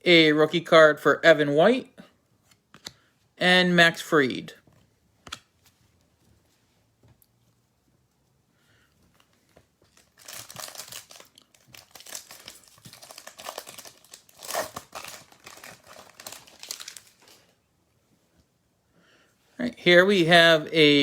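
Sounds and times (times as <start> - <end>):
plastic wrapper tearing and crinkling: 9.9 - 17.5.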